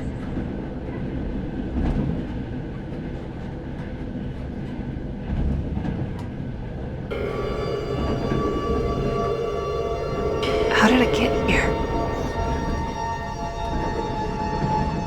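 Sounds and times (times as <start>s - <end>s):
eerie music chord: 7.1s - 15.0s.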